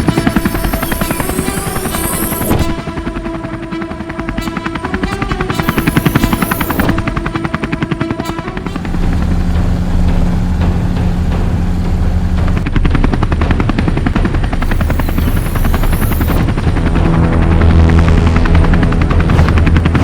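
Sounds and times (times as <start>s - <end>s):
low engine drone: 0.0s - 2.9s, 5.4s - 7.4s, 8.4s - 20.0s.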